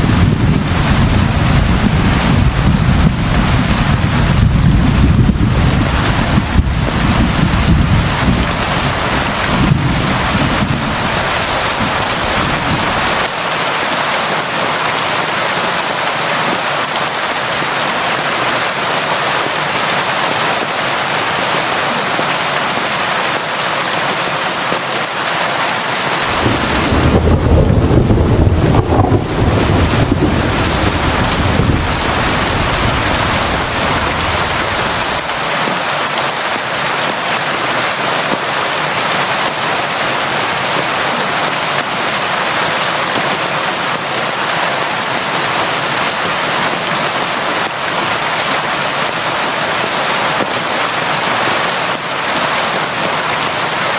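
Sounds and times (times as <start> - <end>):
thunder rumbling: 0.0 - 13.3, 26.2 - 35.4
rain falling: 0.0 - 53.9.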